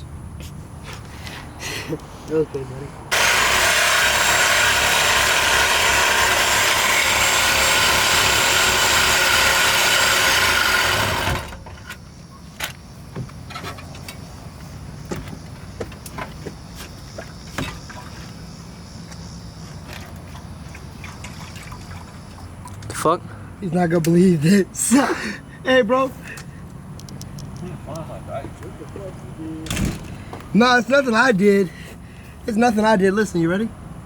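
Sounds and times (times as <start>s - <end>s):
power tool cutting metal pipe: 3.1s - 11.6s.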